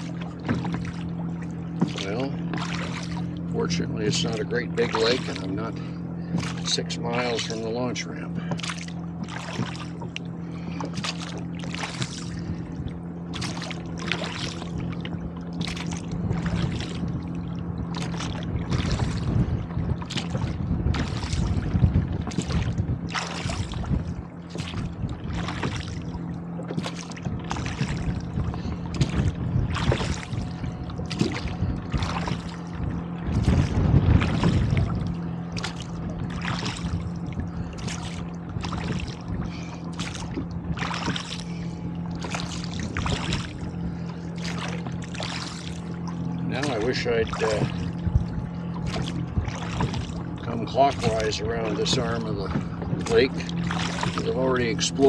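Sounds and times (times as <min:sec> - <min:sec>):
oars splashing: 0:00.0 - 0:55.0
wind rumbling on microphone: 0:00.0 - 0:55.0
oars knocking in oarlocks: 0:00.2 - 0:01.1, 0:08.4 - 0:12.2.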